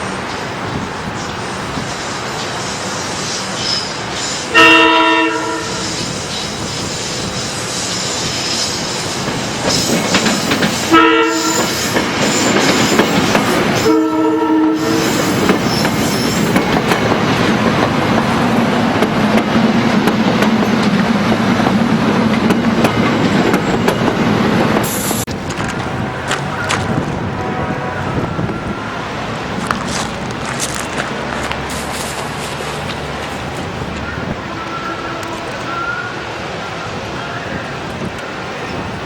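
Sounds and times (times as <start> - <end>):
train engine drone: 0.0 - 39.0
locomotive air horn blasts: 4.5 - 6.1, 10.9 - 11.9, 13.8 - 15.4, 25.8 - 29.3, 34.1 - 36.2
train wheels clacking: 5.4 - 27.2.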